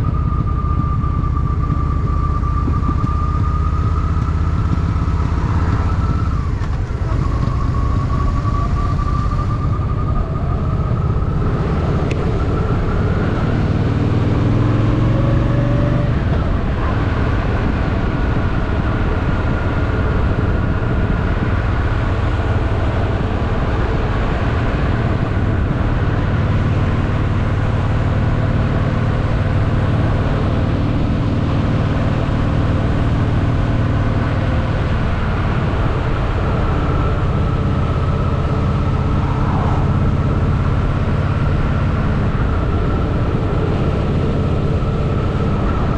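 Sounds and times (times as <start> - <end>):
motorcycle engine running: 0.0 - 45.9
wind rushing: 35.1 - 45.9.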